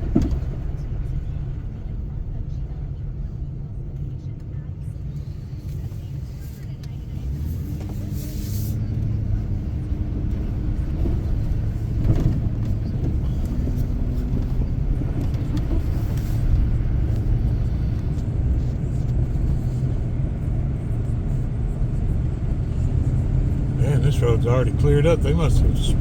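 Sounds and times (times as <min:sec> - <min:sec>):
car interior driving rumble: 0:00.0 - 0:26.0.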